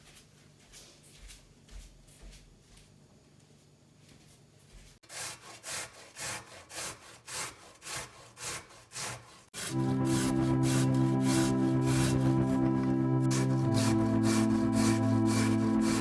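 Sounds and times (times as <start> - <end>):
rasping strokes: 5.0 - 16.0
music with steady tones: 9.7 - 16.0.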